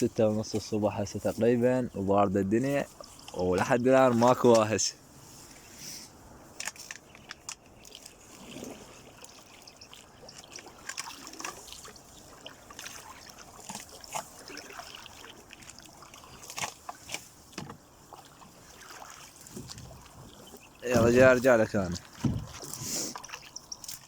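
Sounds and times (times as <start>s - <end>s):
water dripping and sloshing: 0.0s - 5.8s, 6.5s - 24.0s
light splashes and knocks: 6.5s - 24.0s.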